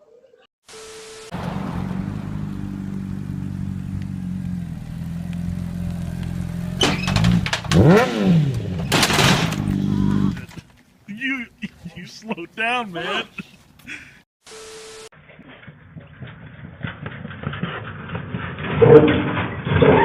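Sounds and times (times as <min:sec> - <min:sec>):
vehicle engine running: 0:01.3 - 0:10.5.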